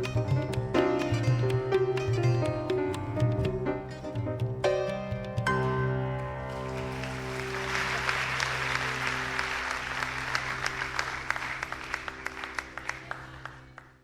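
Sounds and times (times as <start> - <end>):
applause: 6.4 - 14.0.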